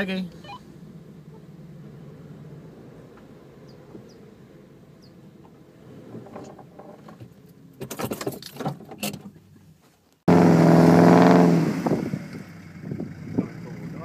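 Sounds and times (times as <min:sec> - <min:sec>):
vehicle engine running: 0:10.3 - 0:14.0.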